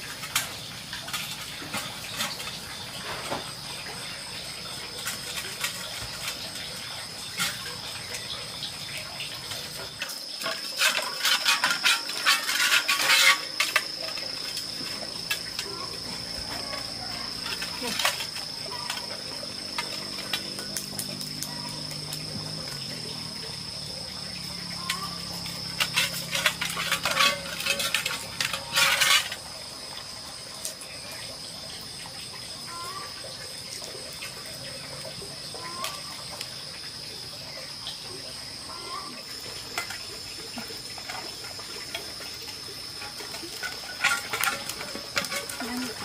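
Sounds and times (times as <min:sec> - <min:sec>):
insects chirring: 0:00.0 - 0:46.0.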